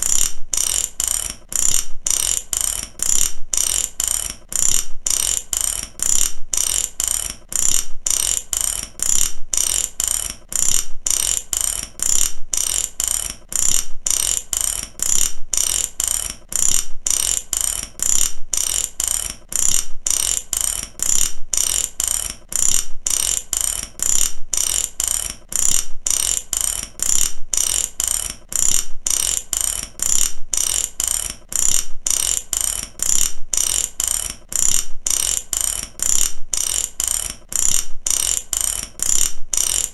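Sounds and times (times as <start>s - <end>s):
mechanical ratchet clicking: 0.0s - 39.9s.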